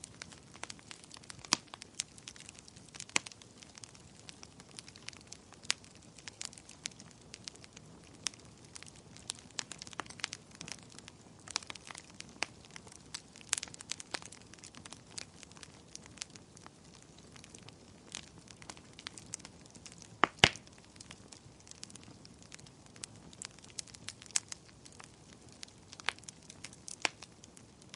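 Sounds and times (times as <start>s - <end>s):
loud fire pops: 0.0s - 27.9s
wood fire crackling: 0.0s - 27.9s.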